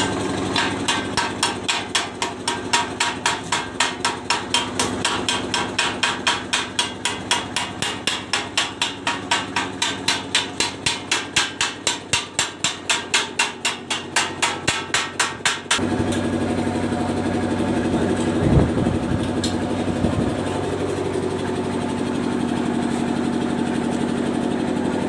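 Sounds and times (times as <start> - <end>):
hammer striking metal: 0.0 - 15.9.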